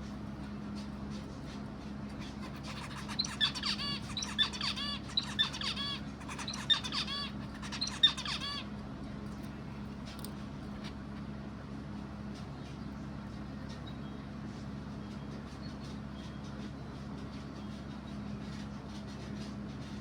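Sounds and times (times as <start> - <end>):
steady low hum: 0.0 - 20.0
bird chirping: 2.4 - 8.7.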